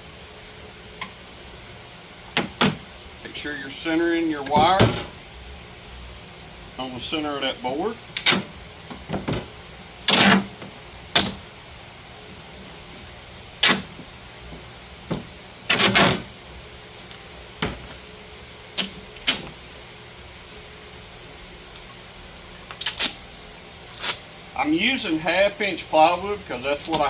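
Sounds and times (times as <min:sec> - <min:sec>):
duct tape pulled off roll: 0:08.2 - 0:08.5, 0:10.0 - 0:10.5, 0:11.1 - 0:11.4, 0:13.6 - 0:13.9, 0:15.7 - 0:16.3, 0:18.8 - 0:19.5, 0:22.7 - 0:23.2, 0:23.9 - 0:24.3.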